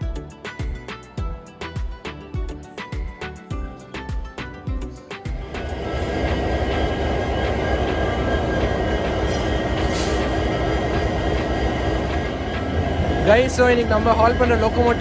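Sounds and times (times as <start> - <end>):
diesel locomotives idling: 5.4 - 15.0.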